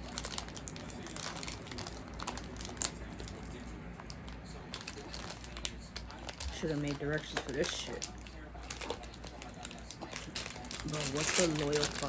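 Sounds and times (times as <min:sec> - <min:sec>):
snack packaging crinkling: 0:00.0 - 0:12.0.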